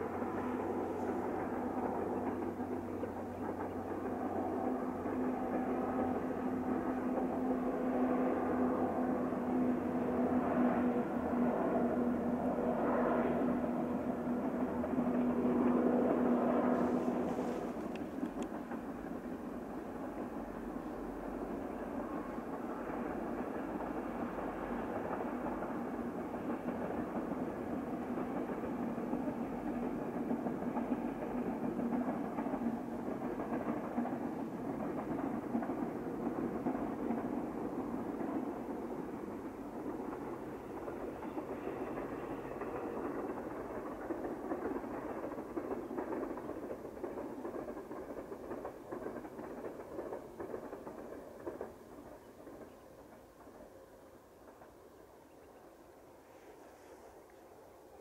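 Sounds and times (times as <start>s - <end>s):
distant train rumbling on rails: 0.0s - 58.0s.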